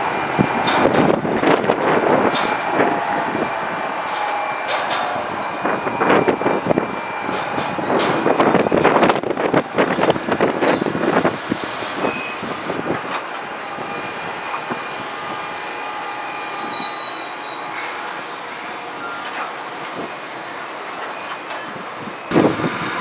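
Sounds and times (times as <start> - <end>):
train rumble: 0.0 - 23.0
wheels clacking over rail joints: 0.4 - 14.8
high wheel squeal: 2.4 - 12.8, 13.6 - 23.0.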